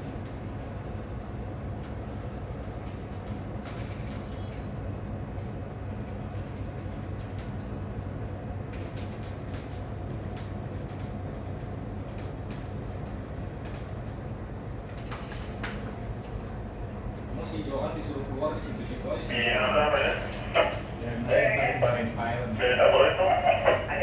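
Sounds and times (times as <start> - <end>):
boat diesel engine droning: 16.7 - 24.0.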